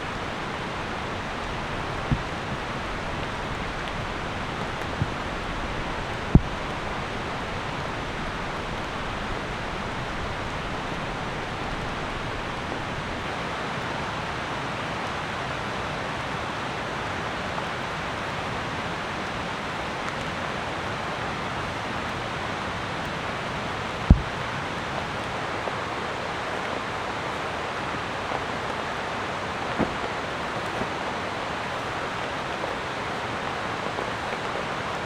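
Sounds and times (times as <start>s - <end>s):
steady rain falling: 0.0s - 35.0s
sharp knock: 24.1s - 24.3s.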